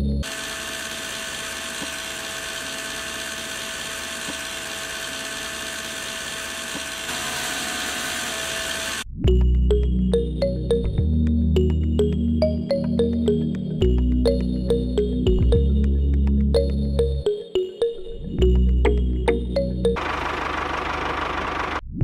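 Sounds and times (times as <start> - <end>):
small electric motor whine: 0.0 - 9.1
background music: 9.2 - 20.0.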